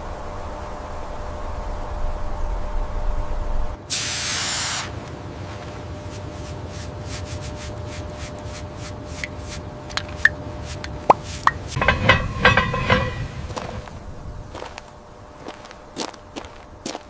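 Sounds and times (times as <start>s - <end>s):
spraying hiss: 3.9s - 5.0s
low rumble: 11.8s - 15.4s.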